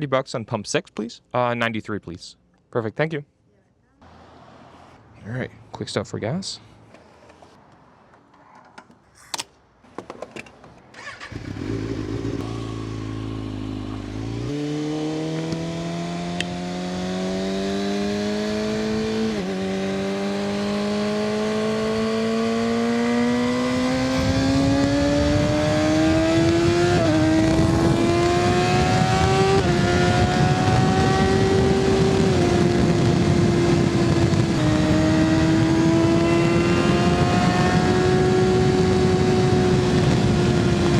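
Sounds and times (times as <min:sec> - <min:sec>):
motorcycle engine accelerating: 0:11.0 - 0:40.9
wind noise: 0:18.1 - 0:40.9.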